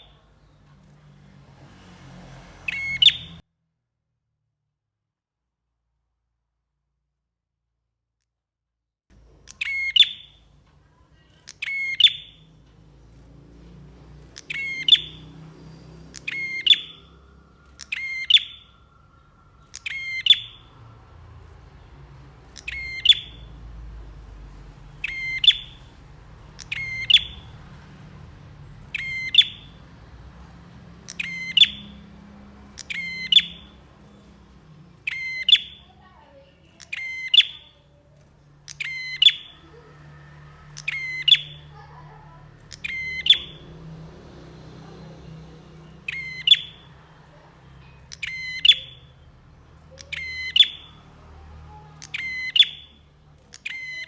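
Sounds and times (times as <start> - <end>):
bird chattering call: 2.7 - 3.4, 9.5 - 10.5, 11.2 - 12.5, 14.3 - 43.7, 45.9 - 51.0, 51.7 - 54.0.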